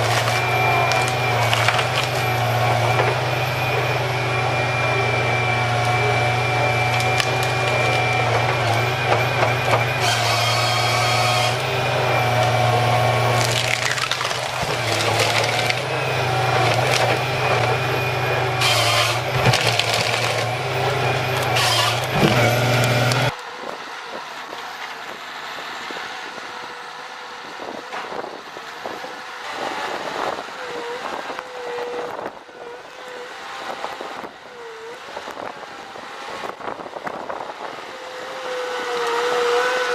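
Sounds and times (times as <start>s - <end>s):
wood cracking and crunching: 0.0s - 3.6s, 6.6s - 23.3s
heavy machine engine running: 0.0s - 39.9s.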